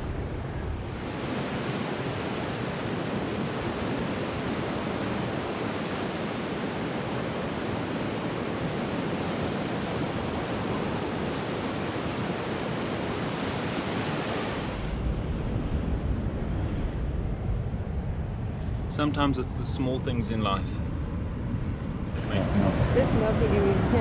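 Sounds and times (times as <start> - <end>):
surf breaking on rocky shore: 0.9 - 15.1.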